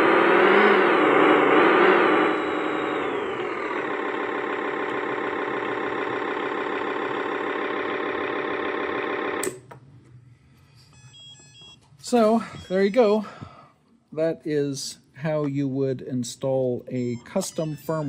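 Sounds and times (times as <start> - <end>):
simulated engine revving and idling: 0.0 - 9.5.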